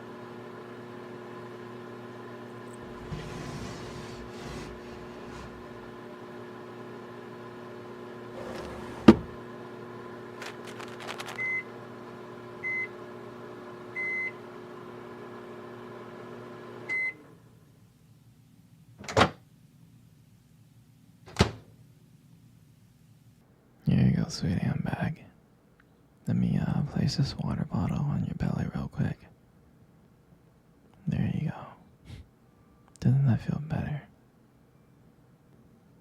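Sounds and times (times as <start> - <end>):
microwave oven humming: 0.0 - 23.4.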